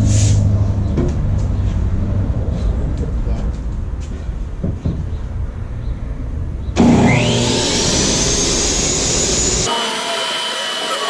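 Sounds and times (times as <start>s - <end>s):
table saw motor spinning up: 6.8s - 11.0s.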